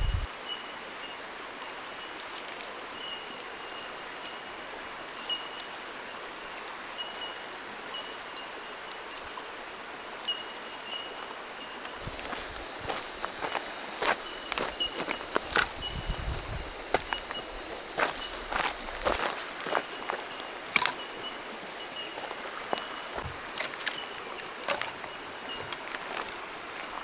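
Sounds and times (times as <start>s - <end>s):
flowing water rushing: 12.0s - 27.0s.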